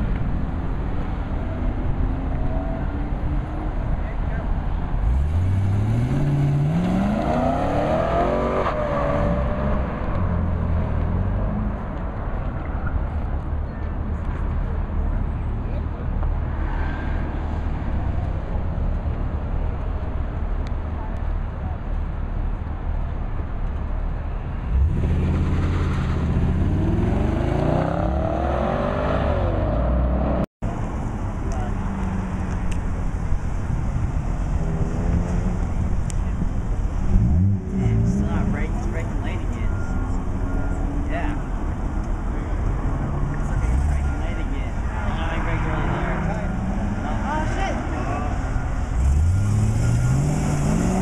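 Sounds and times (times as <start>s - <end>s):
car engine accelerating hard: 45.3s - 51.0s.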